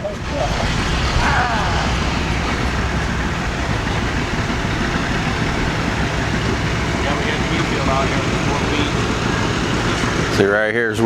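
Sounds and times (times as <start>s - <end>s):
heavy engine rumbling: 0.0s - 11.0s.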